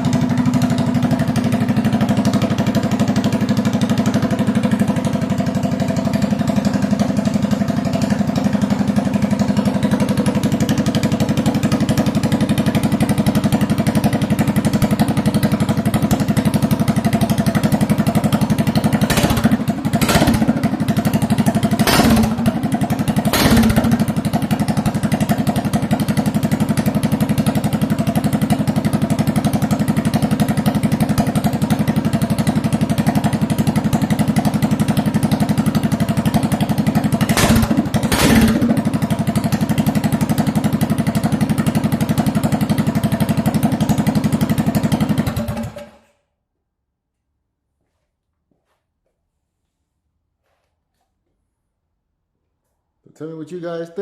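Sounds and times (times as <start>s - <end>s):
small engine idling: 0.0s - 46.3s
short loud engine bursts: 19.1s - 20.7s, 21.8s - 22.6s, 23.3s - 24.1s, 37.3s - 38.8s.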